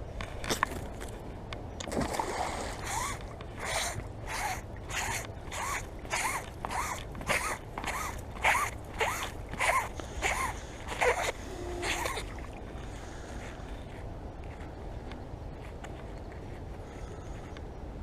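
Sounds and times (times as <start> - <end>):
rope squeak: 2.8 - 12.5
rope rasping through hands: 2.8 - 17.7.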